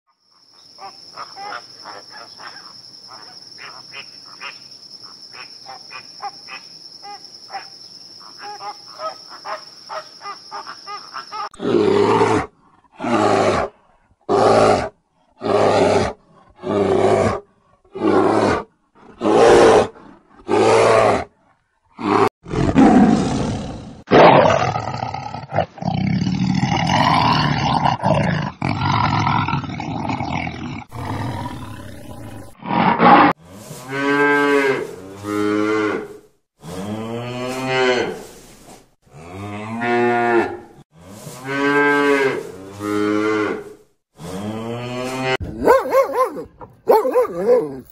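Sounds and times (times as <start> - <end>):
lion roaring: 22.0 - 33.4.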